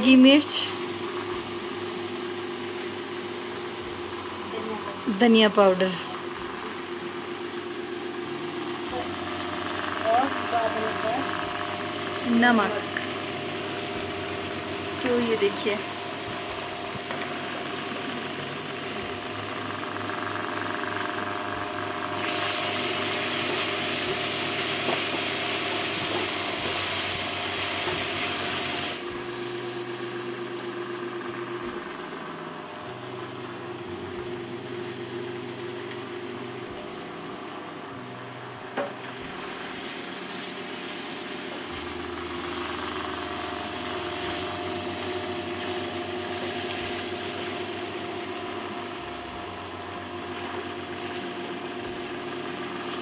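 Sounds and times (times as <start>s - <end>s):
steady hum: 0.0s - 53.0s
curry sizzling in a pan: 22.0s - 29.0s.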